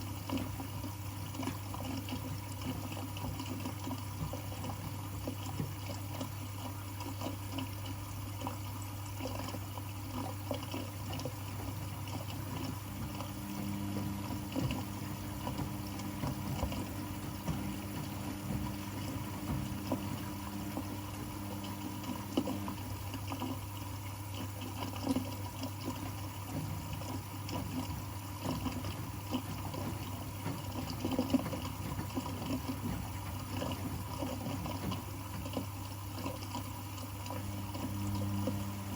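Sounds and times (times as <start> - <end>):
laundry machines humming: 0.0 - 38.9
water running and splashing: 0.0 - 38.9
low machine tone: 12.5 - 23.4, 37.3 - 38.9.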